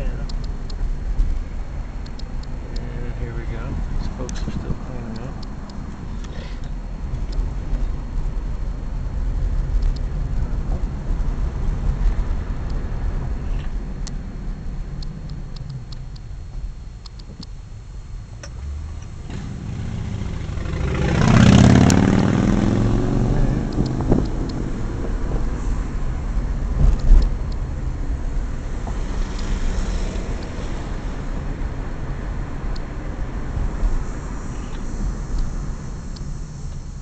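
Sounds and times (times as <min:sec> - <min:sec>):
car driving rumble: 0:00.0 - 0:37.0
vehicle passing by: 0:18.6 - 0:27.2, 0:28.2 - 0:36.6.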